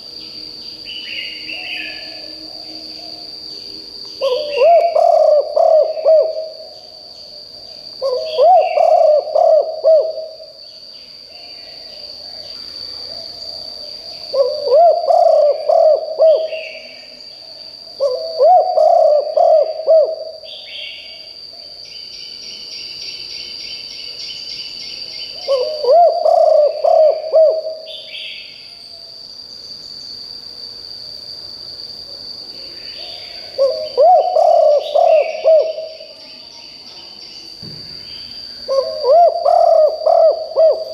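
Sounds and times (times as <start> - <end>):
dove cooing: 4.2 - 6.8, 8.0 - 10.6, 14.3 - 16.9, 18.0 - 20.9, 25.4 - 28.0, 33.0 - 36.1, 38.7 - 40.9.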